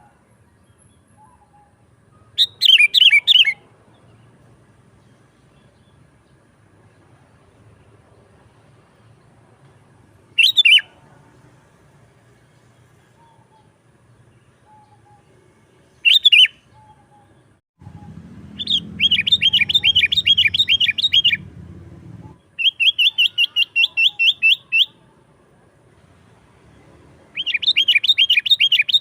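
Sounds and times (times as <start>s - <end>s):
bulbul calling: 1.2s - 3.6s, 10.4s - 11.0s, 16.0s - 21.5s, 22.2s - 25.0s, 27.3s - 29.0s
bird chattering notes: 18.0s - 21.4s.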